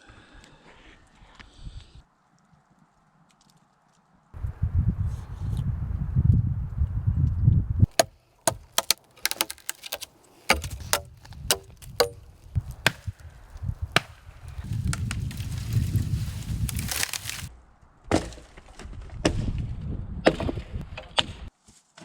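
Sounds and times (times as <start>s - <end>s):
chopping knocks on wood: 7.9s - 12.2s.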